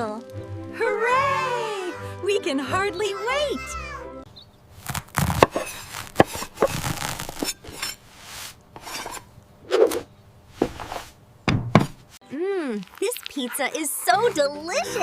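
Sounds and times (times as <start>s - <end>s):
scraping and rubbing: 4.8s - 11.2s.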